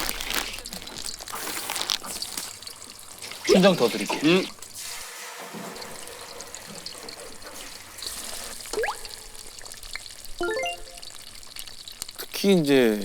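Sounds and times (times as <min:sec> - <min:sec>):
oil sizzling in a pan: 0:01.0 - 0:13.0
rising beeps: 0:10.4 - 0:11.1.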